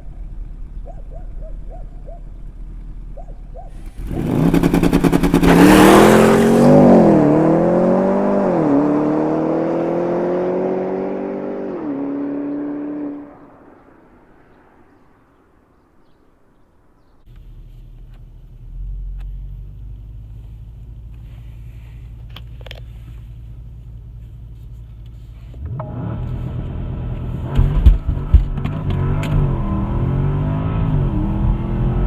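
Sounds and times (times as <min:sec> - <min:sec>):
car engine rumbling and accelerating: 0:00.0 - 0:32.0
exhaust cracks: 0:03.7 - 0:07.3, 0:17.3 - 0:29.8.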